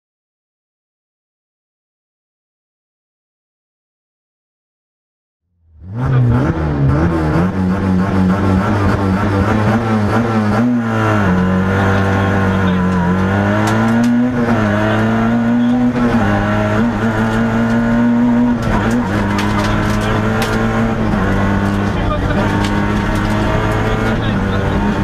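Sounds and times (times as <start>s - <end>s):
rally car engine revving: 5.7s - 25.0s.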